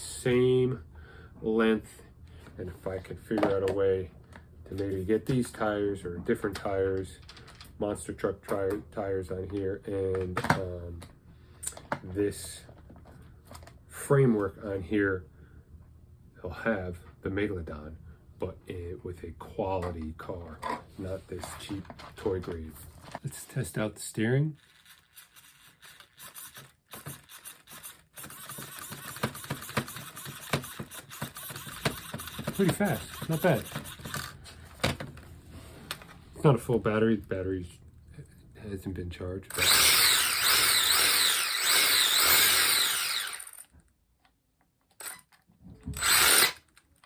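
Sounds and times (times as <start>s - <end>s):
steering servo whirring: 24.6s - 34.3s, 39.5s - 43.6s, 46.0s - 46.6s
toy motor running with clicking rattle: 24.6s - 34.4s, 39.5s - 43.7s, 46.0s - 46.8s
electric motor whining: 39.6s - 43.6s, 46.0s - 46.6s.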